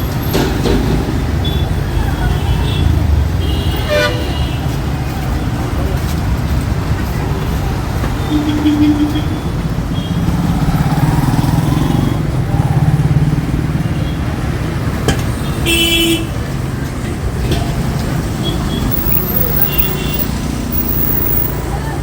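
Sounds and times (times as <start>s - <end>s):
passing vehicle engines: 0.0s - 22.0s
car horn blast: 2.4s - 4.7s, 8.2s - 10.2s.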